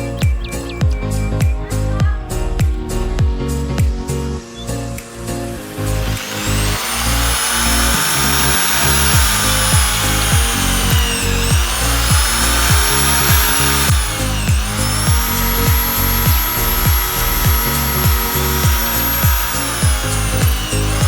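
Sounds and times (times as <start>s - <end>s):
music with steady beat: 0.0s - 21.0s
power tool motor whining: 4.5s - 21.0s.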